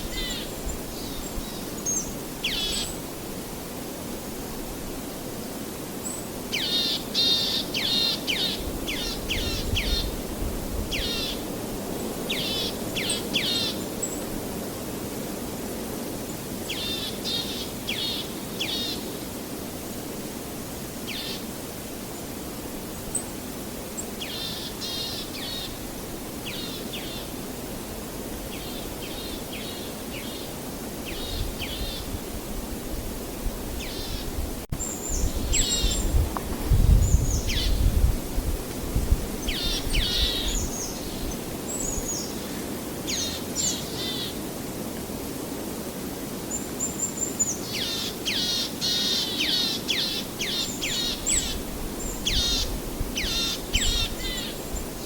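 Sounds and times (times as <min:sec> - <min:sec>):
small birds singing: 0:00.0 - 0:03.1, 0:06.0 - 0:10.2, 0:10.9 - 0:14.3, 0:26.4 - 0:27.4, 0:28.4 - 0:32.1, 0:33.8 - 0:37.9, 0:39.4 - 0:44.4, 0:46.5 - 0:55.0.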